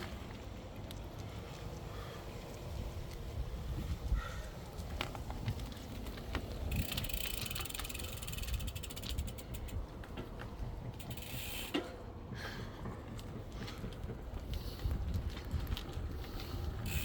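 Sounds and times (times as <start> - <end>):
wind rumble on microphone: 0.0 - 11.6, 12.2 - 17.0
bicycle freewheel ticking: 6.6 - 9.9, 10.8 - 11.9, 16.2 - 17.0.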